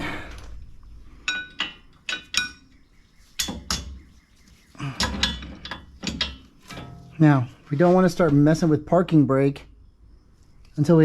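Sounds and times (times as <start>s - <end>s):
handling noise: 0.4s - 8.5s
metal tools clinking: 1.2s - 4.1s, 4.8s - 8.5s.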